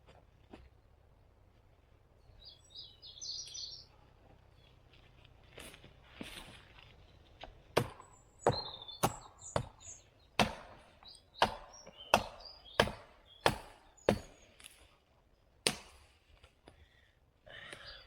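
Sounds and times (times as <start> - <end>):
birds chirping: 2.0 - 5.1, 6.2 - 14.6, 17.5 - 18.0
blade chopping wood: 7.4 - 14.8, 15.6 - 16.1.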